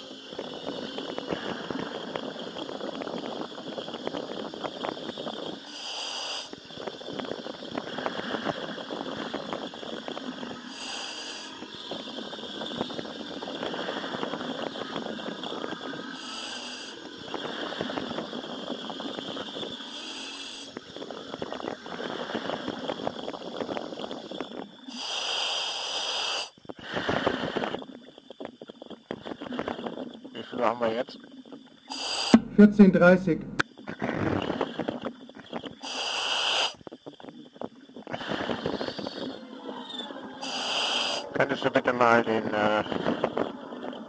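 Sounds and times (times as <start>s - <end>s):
exhaled air bubbling: 0.0s - 25.1s, 33.4s - 41.7s
demand valve hiss: 0.0s - 28.3s, 31.8s - 33.6s, 34.4s - 37.4s, 38.1s - 43.4s.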